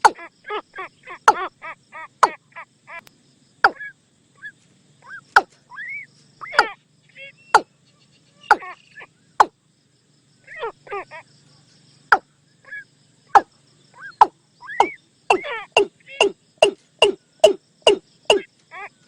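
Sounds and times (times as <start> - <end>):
short quieter bird calls: 0.0 - 9.7, 10.4 - 19.0
bird calls sharp falling notes: 3.6 - 6.8, 8.4 - 9.5, 13.4 - 18.7.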